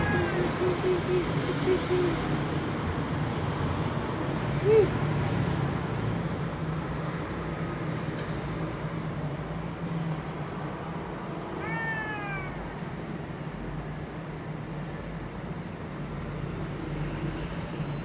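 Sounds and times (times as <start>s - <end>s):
cat meowing: 0.0s - 2.2s, 11.5s - 12.8s.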